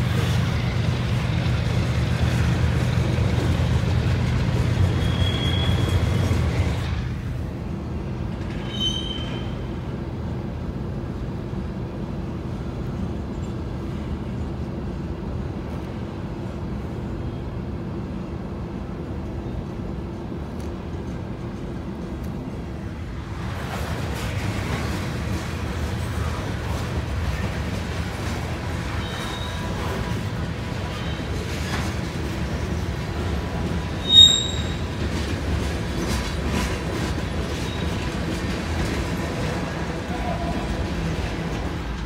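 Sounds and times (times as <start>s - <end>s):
train wheels rumbling on rail: 0.0s - 42.0s
high wheel squeal: 4.8s - 6.7s, 8.5s - 9.7s, 28.9s - 29.9s, 34.0s - 34.9s.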